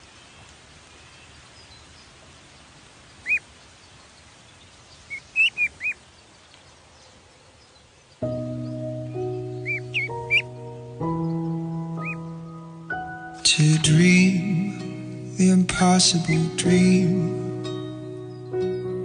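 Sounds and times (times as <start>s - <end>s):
faint background hiss: 0.0s - 19.0s
bird chirping: 1.0s - 15.0s, 16.1s - 19.0s
sustained music chords: 8.2s - 19.0s.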